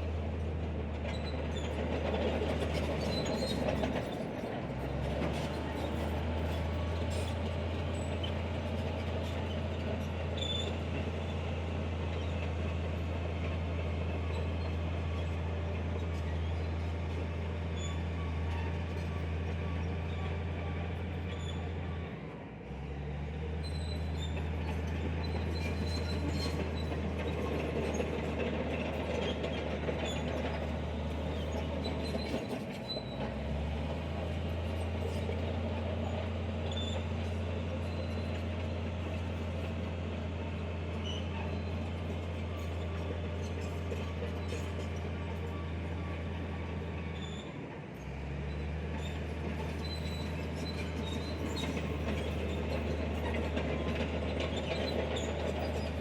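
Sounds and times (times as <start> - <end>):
bulldozer engine droning: 0.0 - 56.0
faint high squeaks: 40.6 - 56.0.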